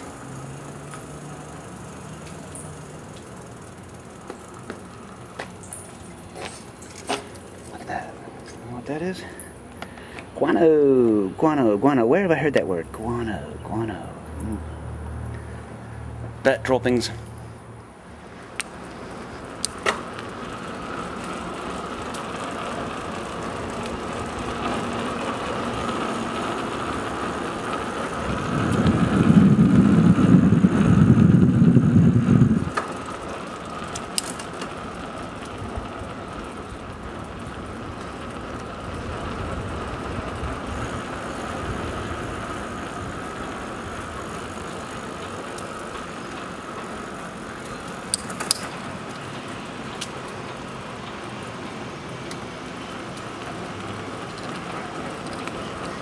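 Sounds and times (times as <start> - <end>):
bicycle tyres rolling on trail: 0.0 - 56.0
small clicks: 47.6 - 49.3.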